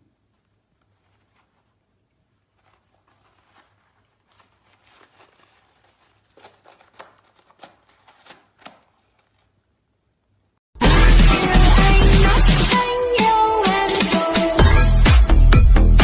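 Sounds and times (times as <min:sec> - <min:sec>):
light rustling: 0:00.2 - 0:09.6.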